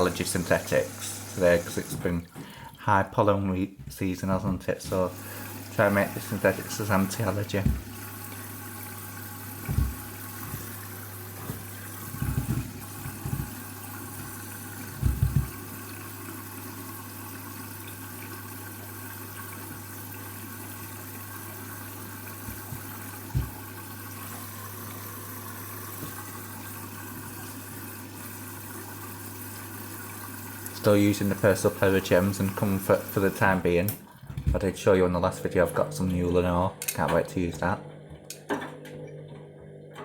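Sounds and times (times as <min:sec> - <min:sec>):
water rushing into washing machine: 0:00.0 - 0:40.0
dull thumps: 0:07.6 - 0:08.0, 0:09.6 - 0:10.8, 0:11.4 - 0:13.6.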